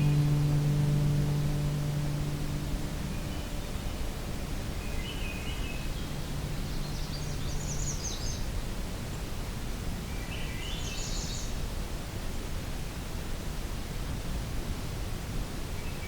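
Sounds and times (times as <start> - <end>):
songbird singing rising notes: 0.0 - 8.6
low background rumble: 0.0 - 9.9.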